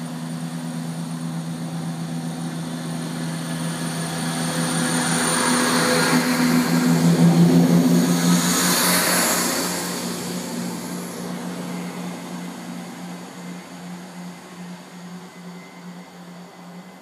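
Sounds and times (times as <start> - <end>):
low pulsing hum: 0.0 - 17.0
train moving away: 0.0 - 17.0
high rushing sound: 2.8 - 13.2.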